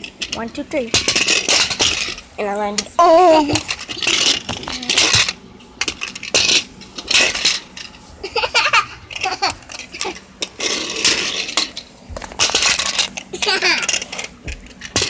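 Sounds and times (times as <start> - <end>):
toy cars clattering: 0.1 - 15.0
child vocal sound: 3.0 - 3.6.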